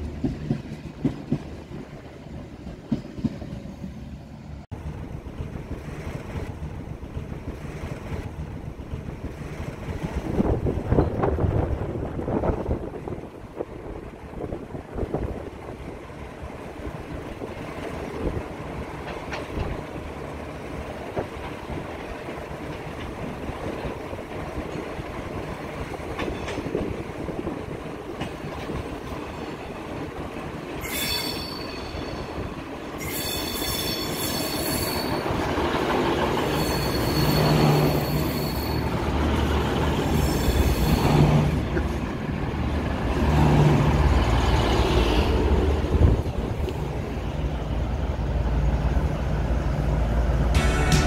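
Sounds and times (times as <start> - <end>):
diesel train rumble: 0.0 - 51.0
steel wheels squealing: 30.8 - 35.4, 36.4 - 39.2, 40.0 - 41.6.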